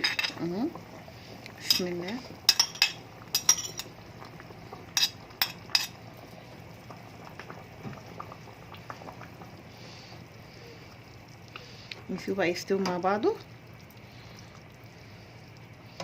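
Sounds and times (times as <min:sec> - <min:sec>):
water boiling and bubbling in a pot: 0:00.0 - 0:16.0
metal utensil clinking against pot: 0:01.7 - 0:03.9.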